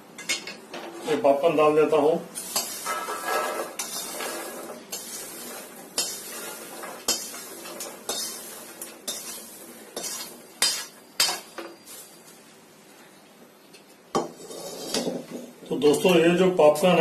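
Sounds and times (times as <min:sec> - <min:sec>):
popcorn rustling: 0:02.5 - 0:11.0.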